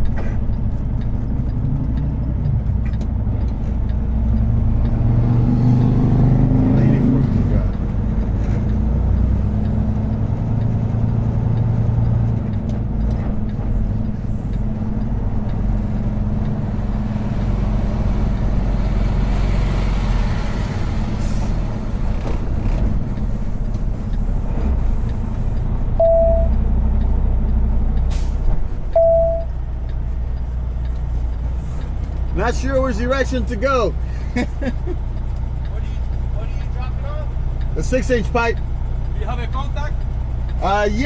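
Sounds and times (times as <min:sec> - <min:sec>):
diesel truck engine running: 0:00.0 - 0:41.0
short beeps: 0:26.0 - 0:26.6, 0:29.0 - 0:29.5.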